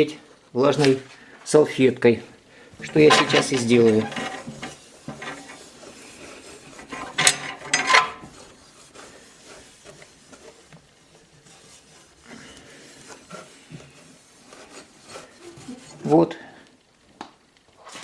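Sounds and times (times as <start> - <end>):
wet wipe rubbing on glass: 2.8 - 16.4.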